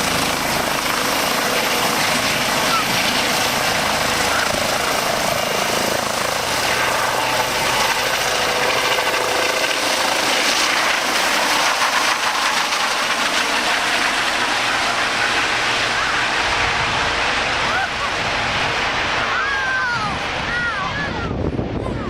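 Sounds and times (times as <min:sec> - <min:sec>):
helicopter rotor and turbine: 0:00.0 - 0:22.0.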